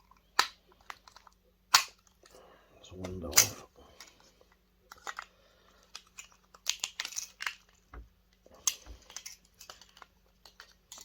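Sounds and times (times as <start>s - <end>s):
sharp plastic clicks and crackles: 4.9s - 7.9s.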